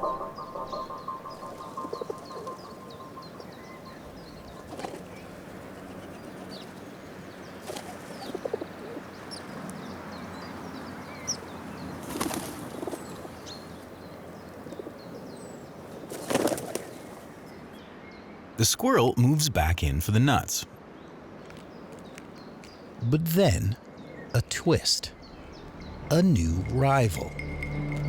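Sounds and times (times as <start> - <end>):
small birds chirping: 0.0 - 18.2
pigeons flapping wings: 12.0 - 13.1, 16.1 - 17.1.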